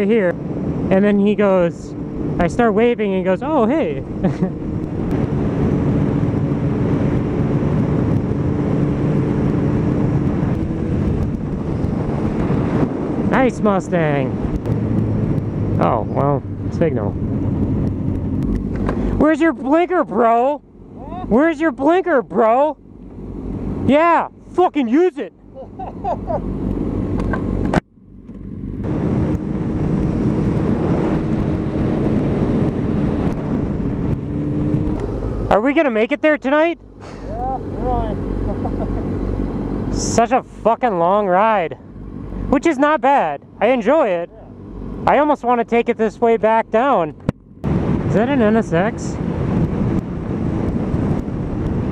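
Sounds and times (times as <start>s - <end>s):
motorcycle engine running: 0.0s - 22.0s
motorcycle engine cruising: 0.0s - 51.9s
road rumble: 0.0s - 51.9s
wind rushing over microphone: 0.0s - 51.9s.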